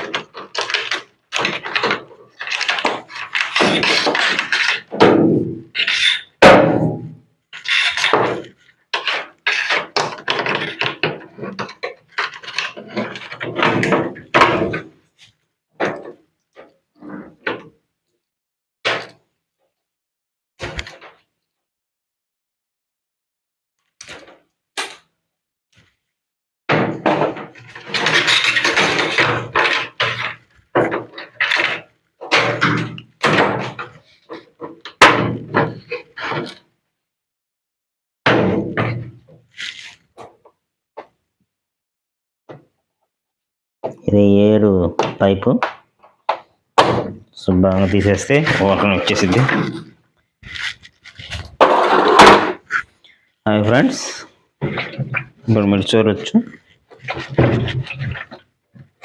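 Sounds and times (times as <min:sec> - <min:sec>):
clattering knocks of machine parts: 0:00.0 - 0:15.0, 0:26.7 - 0:36.6
thuds: 0:01.4 - 0:07.2, 0:38.3 - 0:39.3
loud sharp thunk: 0:05.0 - 0:05.7, 0:06.4 - 0:07.2, 0:38.3 - 0:39.2, 0:46.8 - 0:47.2.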